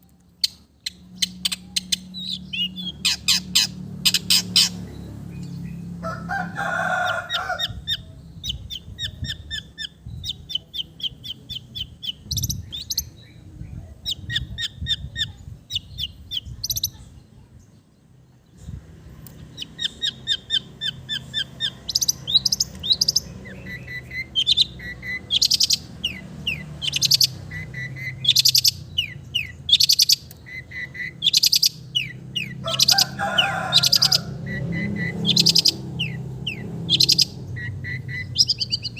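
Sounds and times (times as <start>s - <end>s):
bird singing chattering song: 0.0s - 6.0s, 7.0s - 38.9s
harsh grating bird calls: 0.4s - 13.1s, 19.3s - 38.9s.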